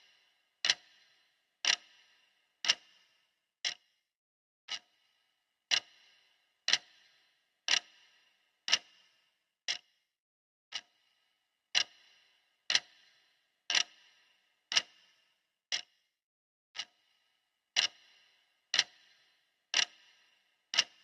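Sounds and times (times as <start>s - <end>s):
clock ticking: 0.6s - 1.0s, 1.6s - 3.8s, 4.7s - 4.9s, 5.7s - 8.1s, 8.7s - 9.1s, 10.7s - 10.9s, 11.7s - 15.1s, 16.8s - 17.1s, 17.8s - 19.2s, 19.8s - 21.0s.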